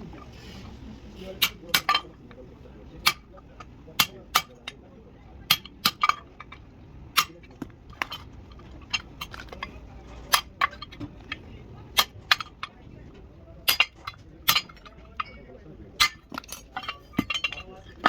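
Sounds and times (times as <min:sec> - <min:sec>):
tools clinking on metal: 0:01.4 - 0:02.4, 0:05.5 - 0:06.6, 0:07.2 - 0:12.8, 0:13.6 - 0:18.0.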